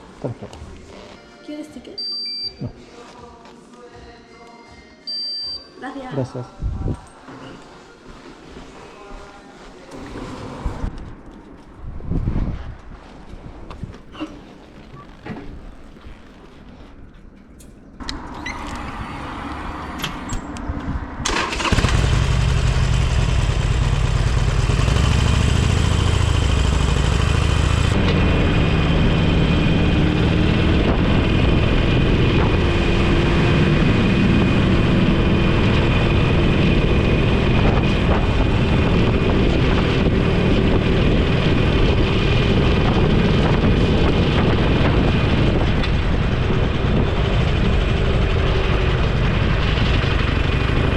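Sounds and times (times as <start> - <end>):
rushing wind: 10.4 - 14.2, 18.2 - 50.9
motorcycle engine: 21.2 - 50.9.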